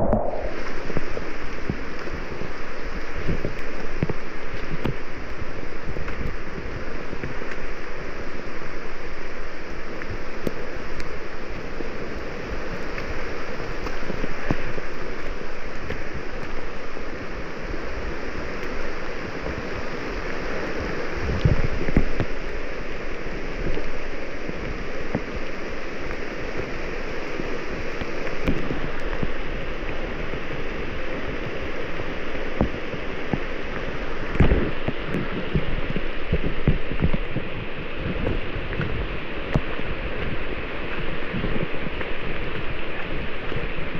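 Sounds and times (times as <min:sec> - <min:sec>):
low thumps on microphone: 0:00.0 - 0:01.8
steady rainfall: 0:00.0 - 0:43.9.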